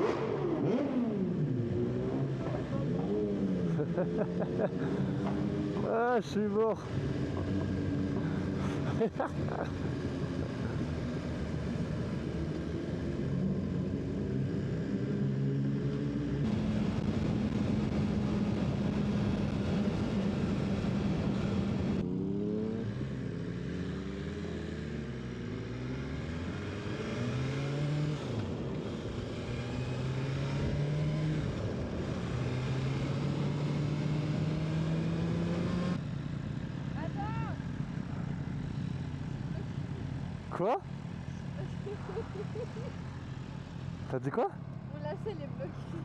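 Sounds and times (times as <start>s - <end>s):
motorcycle engine running: 0.0s - 25.7s.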